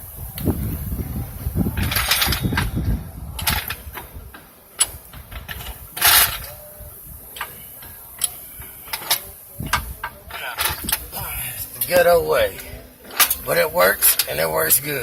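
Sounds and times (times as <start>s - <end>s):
metal parts clicking and knocking: 1.8s - 2.8s, 3.4s - 6.7s, 7.3s - 11.1s, 12.6s - 14.4s.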